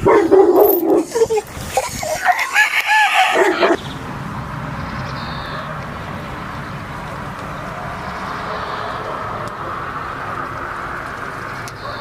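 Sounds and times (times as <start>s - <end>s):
rooster crowing loudly: 2.2s - 3.8s.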